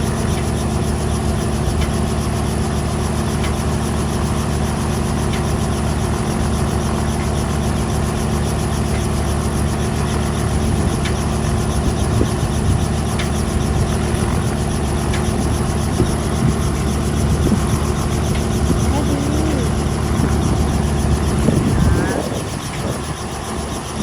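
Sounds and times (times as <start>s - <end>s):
engine running steadily: 0.0s - 24.0s
faint voices: 17.4s - 23.8s.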